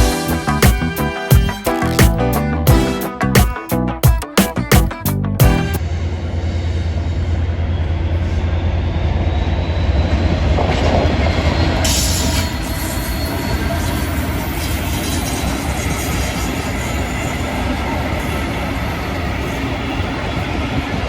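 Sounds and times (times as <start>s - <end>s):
train rumble and rail noise: 5.8s - 21.0s.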